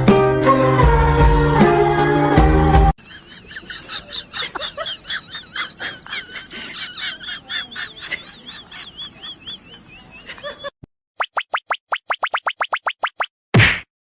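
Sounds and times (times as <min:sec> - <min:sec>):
small birds chirping: 0:03.0 - 0:10.7.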